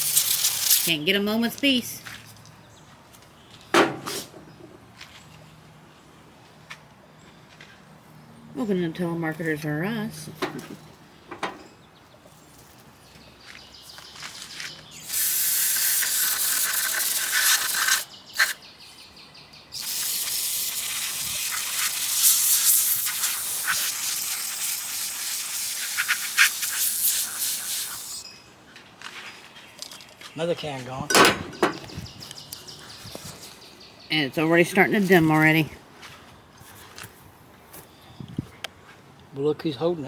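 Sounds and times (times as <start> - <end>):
aerosol can spraying: 0.0 - 0.9, 15.0 - 18.6, 19.8 - 28.2.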